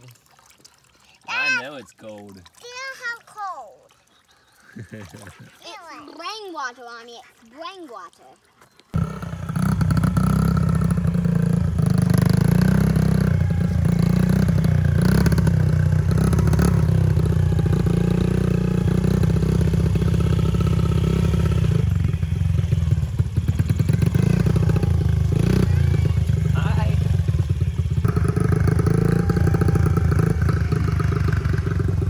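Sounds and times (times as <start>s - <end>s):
small engine running: 8.9s - 32.0s.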